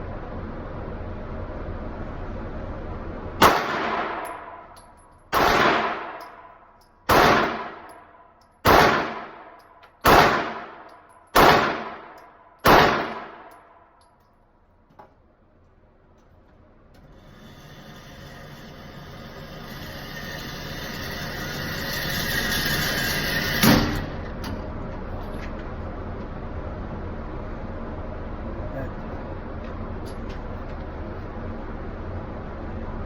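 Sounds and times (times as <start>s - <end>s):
gunshots with echo: 3.4s - 4.4s, 5.4s - 6.2s, 7.1s - 7.9s, 8.6s - 10.8s, 11.4s - 13.5s.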